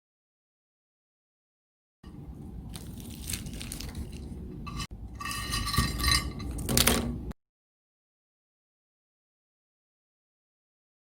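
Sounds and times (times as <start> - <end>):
dishes and utensils clinking: 3.6 - 7.2.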